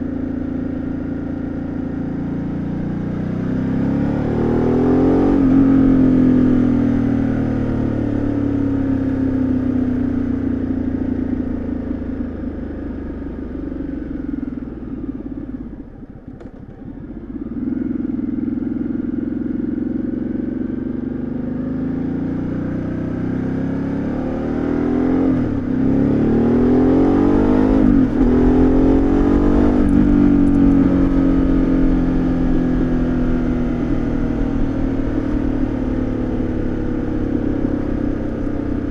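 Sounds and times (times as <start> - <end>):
motorcycle engine and exhaust: 0.0 - 38.9
motorcycle gear changes: 15.7 - 17.3, 26.6 - 38.9.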